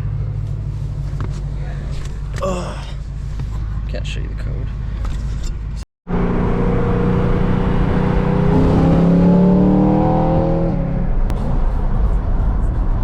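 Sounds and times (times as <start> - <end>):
car engine accelerating hard: 6.1 - 12.7.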